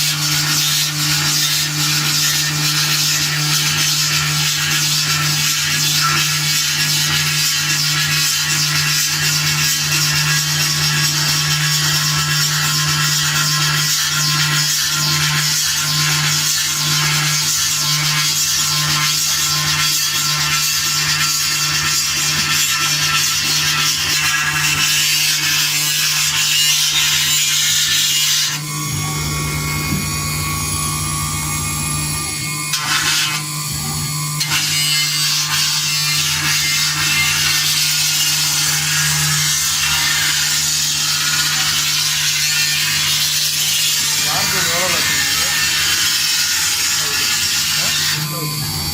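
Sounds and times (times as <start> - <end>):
engraving machine spindle hum: 0.0 - 48.9
hissing grinding cutting noise: 0.0 - 48.9
steady whining tones: 27.3 - 34.5, 44.2 - 48.9.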